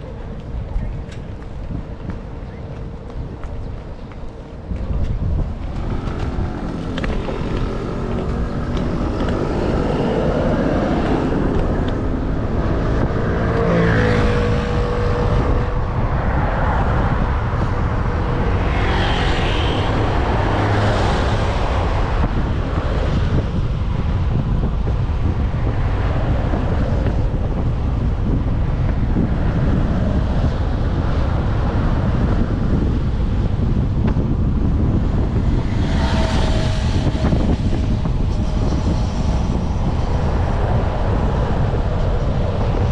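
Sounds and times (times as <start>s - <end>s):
road traffic: 0.0s - 42.9s
wind buffeting microphone: 0.0s - 42.9s
vehicle engine passing by: 5.7s - 16.0s.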